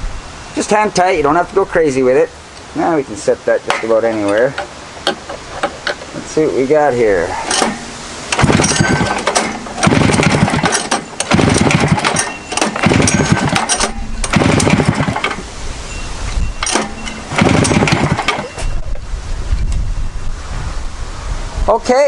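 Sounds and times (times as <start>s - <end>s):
snowmobile engine pulled over by hand: 8.3s - 15.4s, 16.8s - 18.6s.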